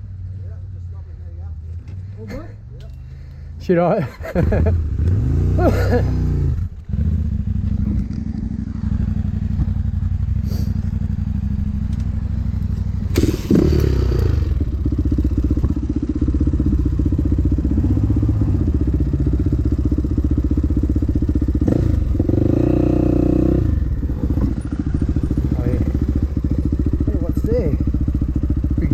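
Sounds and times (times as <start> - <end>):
dirt bike engine under load: 11.7 - 14.8.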